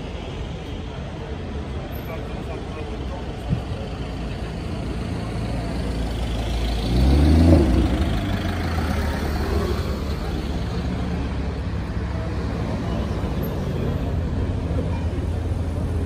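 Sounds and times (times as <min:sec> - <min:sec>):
cars driving slowly past: 0:00.0 - 0:16.0
engine revving and accelerating: 0:06.3 - 0:10.1.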